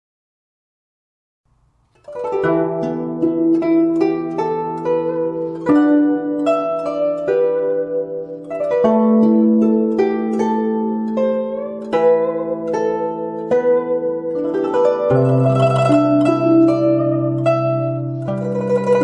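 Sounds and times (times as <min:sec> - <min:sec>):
zither playing slow melody: 0:01.9 - 0:19.0.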